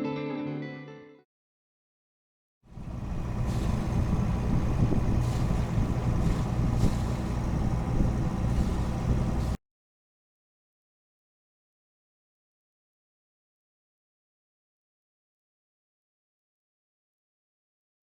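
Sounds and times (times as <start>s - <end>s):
boat engine running: 2.7s - 9.6s
wind on microphone: 2.8s - 9.6s.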